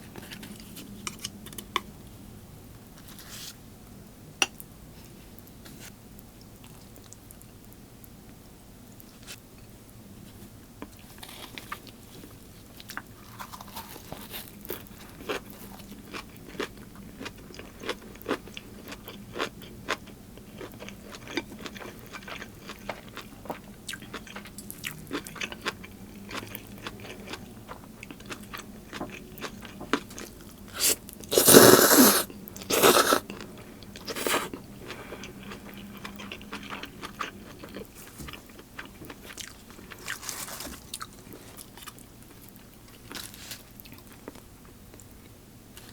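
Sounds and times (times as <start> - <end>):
chewing with crunches: 10.8 - 45.9.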